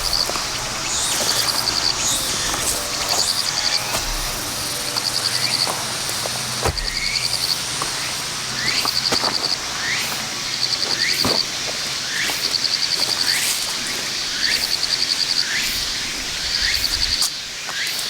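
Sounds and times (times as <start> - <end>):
high pulsed animal trill: 0.0 - 10.8.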